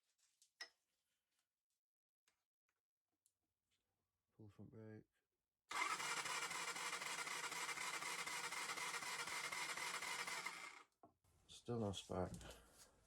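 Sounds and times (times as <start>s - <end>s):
electric starter cranking engine: 5.7s - 10.8s.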